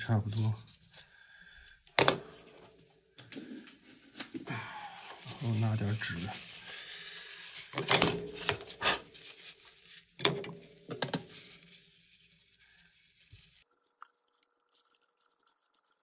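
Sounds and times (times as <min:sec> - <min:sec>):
paper tissue rustling and crackling: 0:03.8 - 0:10.2.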